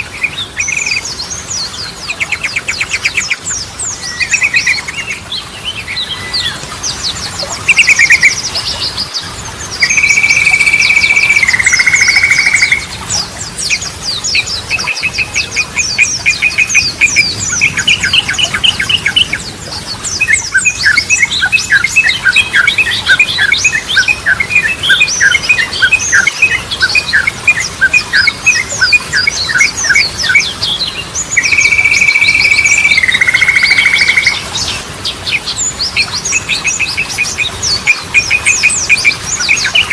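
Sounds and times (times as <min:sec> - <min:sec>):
bulbul singing whistles: 0:00.0 - 0:08.9, 0:09.8 - 0:13.0, 0:13.6 - 0:34.4, 0:35.3 - 0:39.9
small birds chirping: 0:00.0 - 0:39.9.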